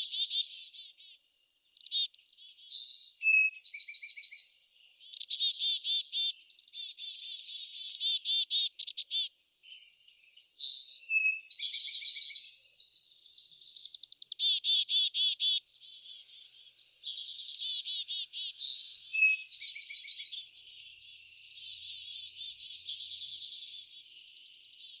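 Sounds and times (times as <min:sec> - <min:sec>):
songbirds trilling: 0:00.0 - 0:25.0.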